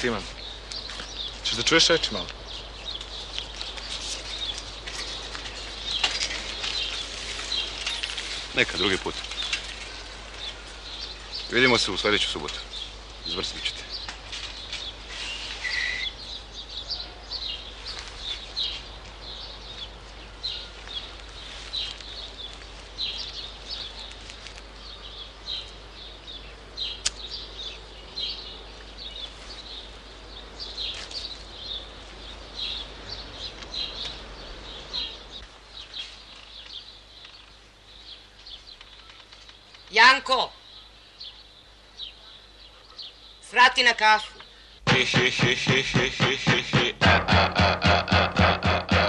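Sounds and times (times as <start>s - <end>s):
small birds chirping: 0.0s - 49.0s
steady low hum: 44.8s - 49.0s.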